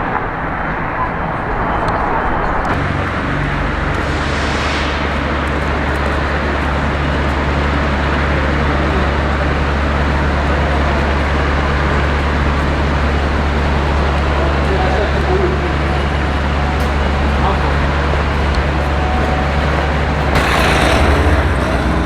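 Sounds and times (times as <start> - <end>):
traffic engine rumble: 0.0 - 22.0
vehicle hissing past: 2.8 - 7.9, 19.4 - 22.0.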